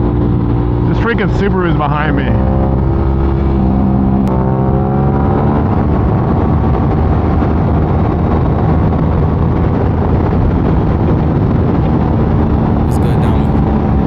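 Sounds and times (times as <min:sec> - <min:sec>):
wind rush on microphone: 0:05.6 - 0:12.7.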